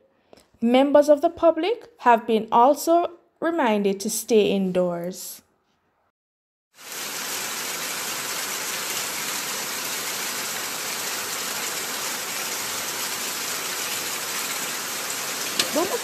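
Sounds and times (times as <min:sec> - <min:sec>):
heavy rain pouring: 0:06.8 - 0:16.0.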